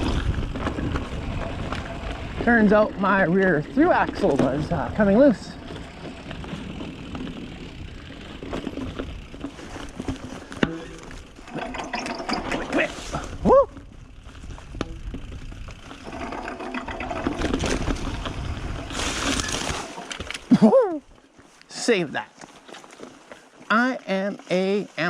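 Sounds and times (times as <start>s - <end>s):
bike tyres rattling over dirt: 0.0s - 21.6s, 22.2s - 25.0s
rider shouting woo: 13.4s - 13.8s.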